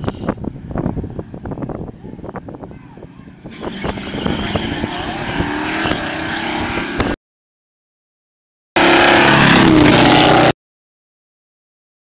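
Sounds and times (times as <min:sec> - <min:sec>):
race car engines revving: 0:03.2 - 0:07.2, 0:08.8 - 0:10.5.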